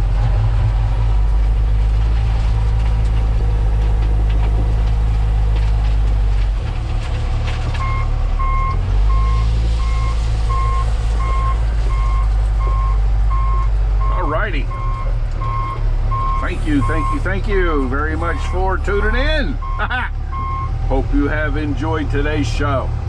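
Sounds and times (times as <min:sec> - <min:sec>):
diesel engine running: 0:00.0 - 0:23.0
reversing alarm beeping: 0:07.8 - 0:17.3, 0:19.6 - 0:20.7.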